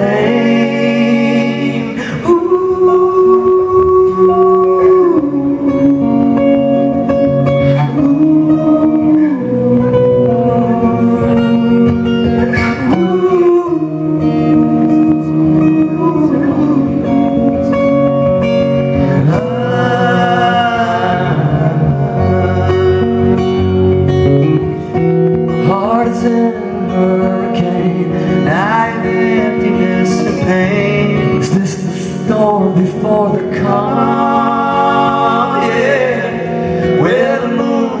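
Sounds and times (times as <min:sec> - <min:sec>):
live rock band playing: 0:00.0 - 0:38.0
person singing: 0:00.0 - 0:38.0.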